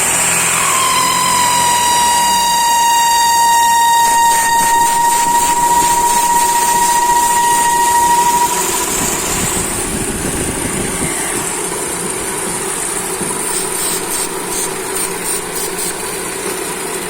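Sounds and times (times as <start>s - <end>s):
high-pitched tone: 0.6s - 10.0s
car engine running: 8.6s - 17.0s.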